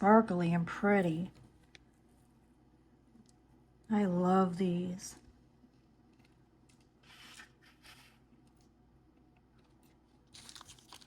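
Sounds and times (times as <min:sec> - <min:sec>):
packaging rustling: 0:10.2 - 0:11.0.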